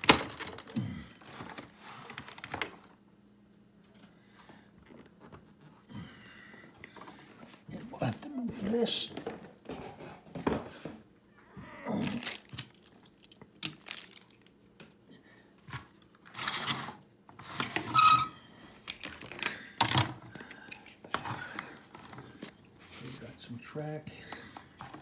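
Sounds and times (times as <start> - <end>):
plastic pieces clattering: 0.0 - 0.8, 12.0 - 14.4.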